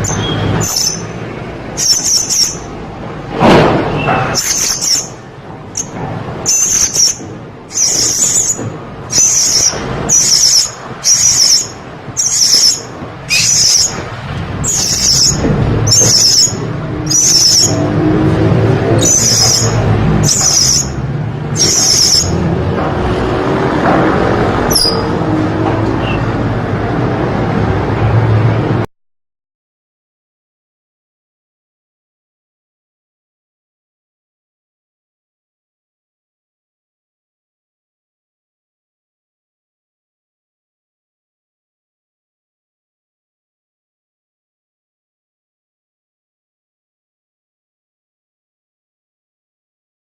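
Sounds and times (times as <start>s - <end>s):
parrot high shrill chirps: 0.0s - 1.1s, 1.8s - 2.7s, 4.3s - 5.2s, 5.8s - 14.0s, 14.6s - 17.8s, 19.0s - 21.0s, 21.6s - 22.4s, 24.7s - 25.1s.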